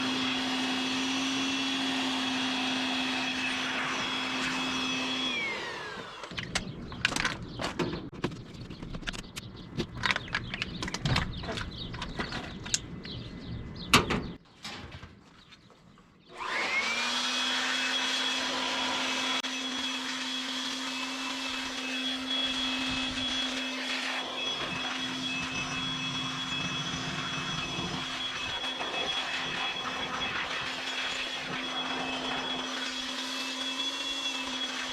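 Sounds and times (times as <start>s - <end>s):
electric motor whine: 0.0s - 7.2s, 16.3s - 34.9s.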